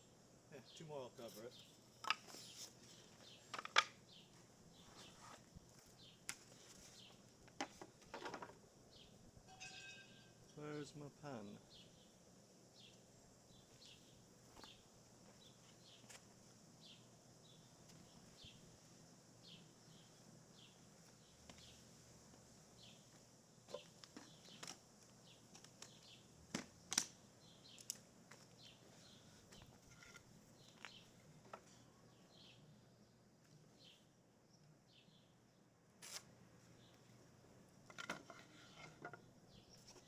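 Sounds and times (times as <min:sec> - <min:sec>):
small bird chirping: 0:23.7 - 0:26.3, 0:28.5 - 0:32.8.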